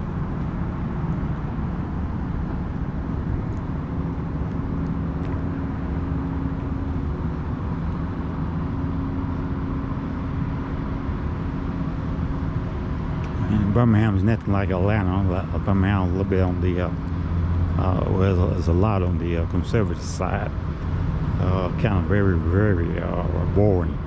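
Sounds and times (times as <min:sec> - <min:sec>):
car engine hum: 0:00.0 - 0:24.0
road noise: 0:00.0 - 0:24.0.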